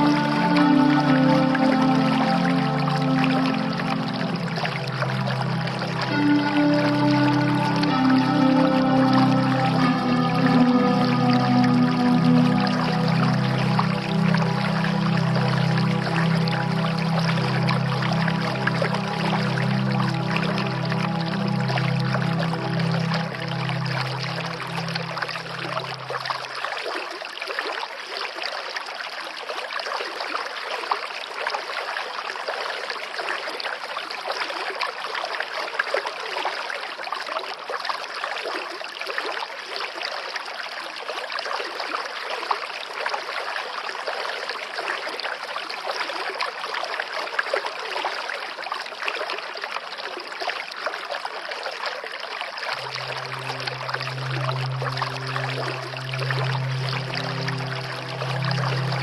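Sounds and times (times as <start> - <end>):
low sustained music tone: 0.0 - 26.9, 52.6 - 59.0
stream water flowing: 0.0 - 59.0.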